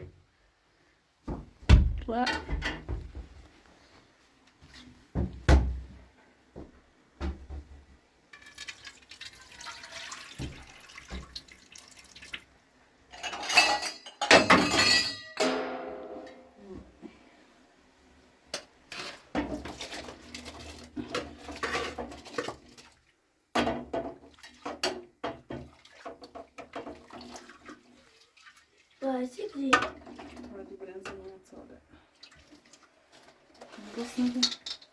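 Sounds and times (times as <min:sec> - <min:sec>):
water splashing: 0:08.5 - 0:12.4
pots and dishes clattering: 0:13.1 - 0:16.5, 0:18.5 - 0:22.8, 0:23.6 - 0:27.5, 0:33.6 - 0:34.9.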